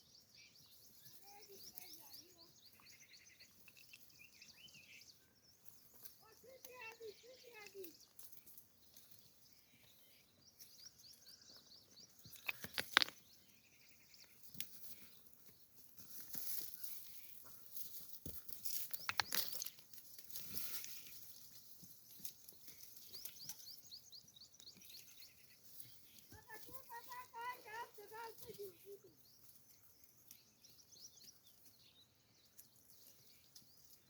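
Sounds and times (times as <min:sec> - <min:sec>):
birds chirping trills: 0:00.0 - 0:15.9, 0:18.7 - 0:34.0
rustling and crunching: 0:12.2 - 0:13.5, 0:14.3 - 0:23.8.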